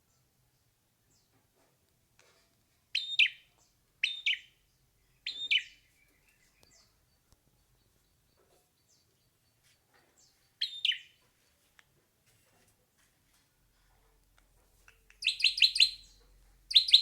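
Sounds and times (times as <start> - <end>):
bird calling sharply: 15.2 - 17.0.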